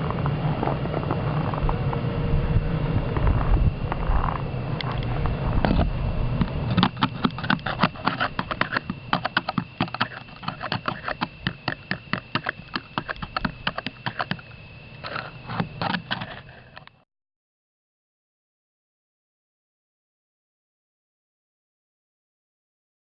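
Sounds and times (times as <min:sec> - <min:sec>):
crunching clicks on ice: 0:05.6 - 0:17.0.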